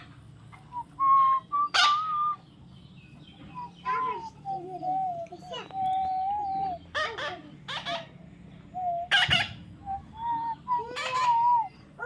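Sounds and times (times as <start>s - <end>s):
parrot whistling: 0.7s - 2.4s, 8.8s - 12.0s
parrot squawking: 1.7s - 2.2s, 6.4s - 8.2s, 9.0s - 9.6s, 10.7s - 12.0s.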